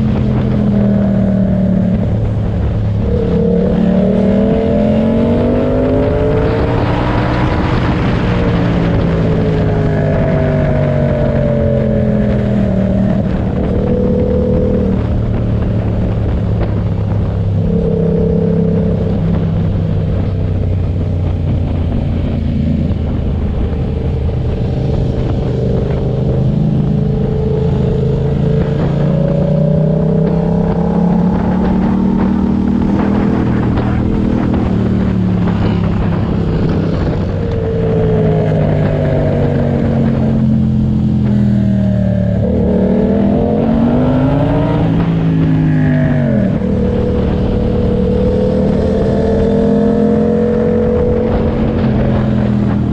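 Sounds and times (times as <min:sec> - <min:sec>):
motorcycle engine revving: 0:00.0 - 0:52.9
wind and road noise: 0:00.0 - 0:52.9.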